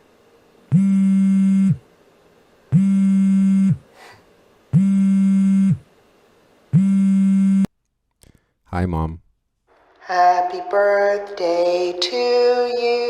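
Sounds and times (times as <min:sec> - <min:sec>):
telephone buzzing: 0:00.7 - 0:01.8, 0:02.7 - 0:03.8, 0:04.7 - 0:05.9, 0:06.7 - 0:07.7.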